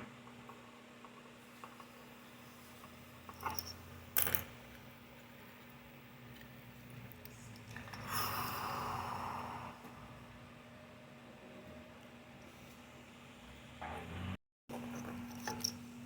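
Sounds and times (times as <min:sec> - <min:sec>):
hiss: 0:08.0 - 0:09.8.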